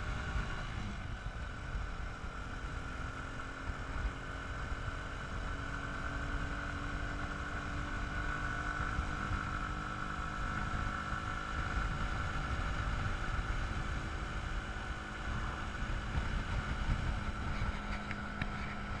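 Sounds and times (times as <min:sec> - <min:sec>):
dirt bike engine running: 0:00.0 - 0:19.0
wind rumble on microphone: 0:08.7 - 0:19.0.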